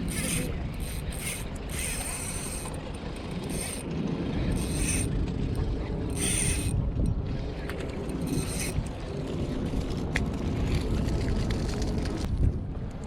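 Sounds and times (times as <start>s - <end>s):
spinning reel rasping: 0.0s - 3.9s, 4.5s - 5.2s, 6.1s - 6.8s, 8.0s - 8.9s.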